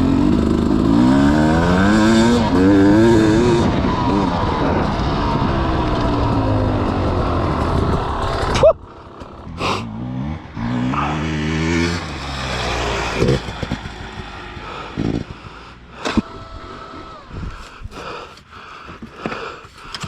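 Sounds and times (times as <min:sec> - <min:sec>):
distant dirt bike revving: 0:00.0 - 0:17.8
dirt bike engine running: 0:00.0 - 0:18.0.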